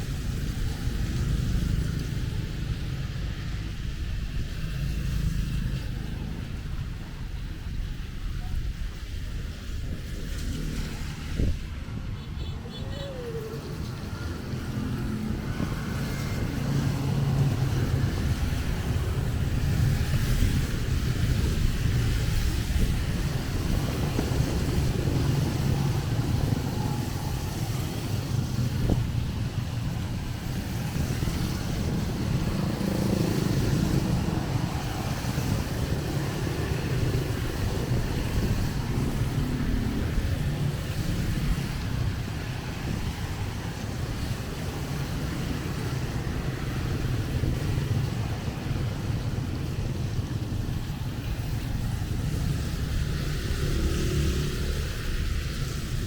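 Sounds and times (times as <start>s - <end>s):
traffic passing on wet road: 0.0s - 56.0s
rain hiss: 13.0s - 56.0s.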